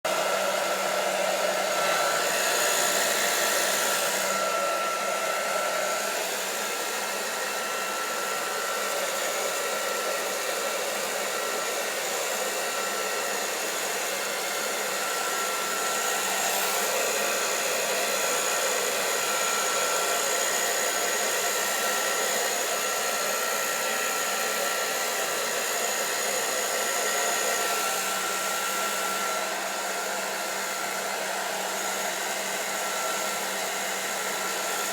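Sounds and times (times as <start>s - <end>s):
hair dryer blowing: 0.0s - 34.9s.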